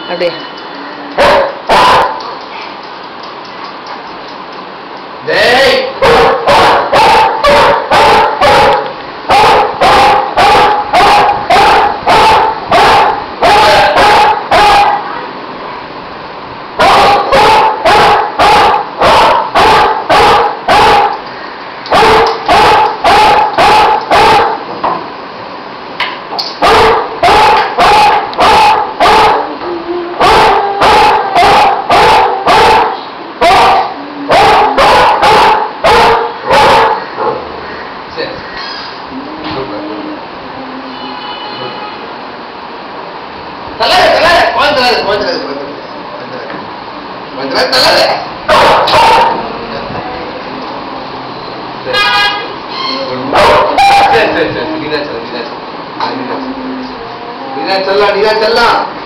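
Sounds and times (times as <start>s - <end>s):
dog barking loudly: 1.2s - 2.3s, 5.9s - 15.1s, 16.8s - 21.2s, 21.9s - 24.7s, 26.6s - 29.5s, 30.2s - 37.6s, 47.8s - 49.5s, 53.3s - 54.4s.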